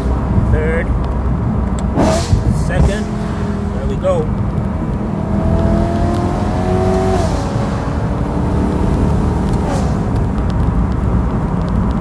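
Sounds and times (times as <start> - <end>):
car engine revving through gears: 1.7 - 10.9.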